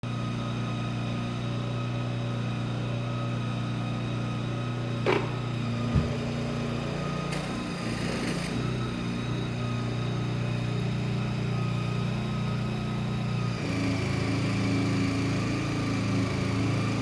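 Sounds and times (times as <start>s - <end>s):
mini digger engine running: 0.0s - 17.0s
sharp knock: 5.1s - 6.2s
thud: 5.1s - 6.4s.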